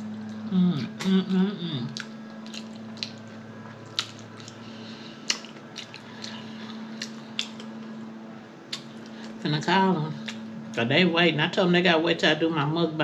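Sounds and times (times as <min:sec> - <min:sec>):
steady low hum: 0:00.0 - 0:13.0
lip smacks: 0:01.9 - 0:03.3, 0:03.9 - 0:04.6, 0:05.2 - 0:07.9, 0:08.7 - 0:09.4
close chewing: 0:01.9 - 0:07.9.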